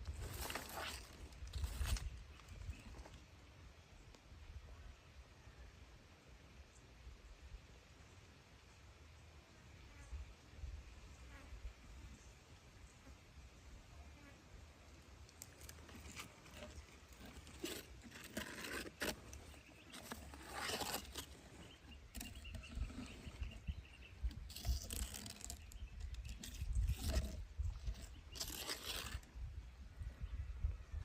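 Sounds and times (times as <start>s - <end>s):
animals tearing at prey: 0.0s - 2.8s, 15.2s - 29.4s.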